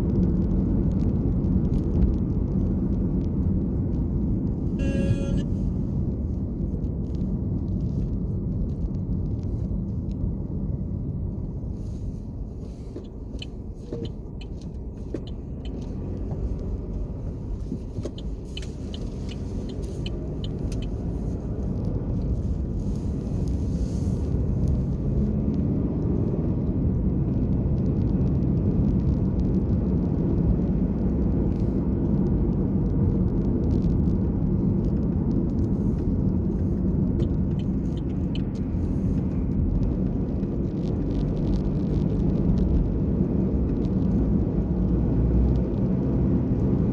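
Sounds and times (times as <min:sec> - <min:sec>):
car engine and tyre noise: 0:00.0 - 0:46.9.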